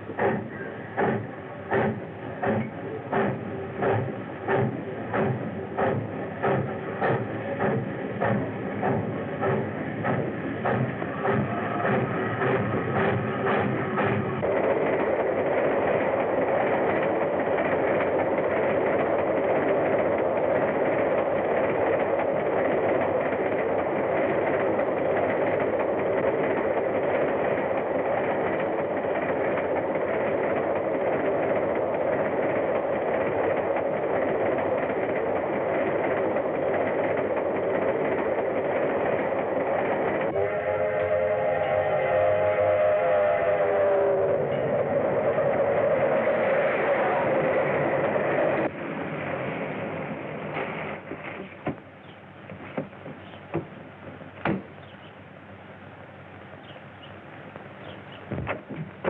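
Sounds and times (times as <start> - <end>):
steam train rushing on rails: 0.0 - 59.0
train whistle: 40.3 - 47.5.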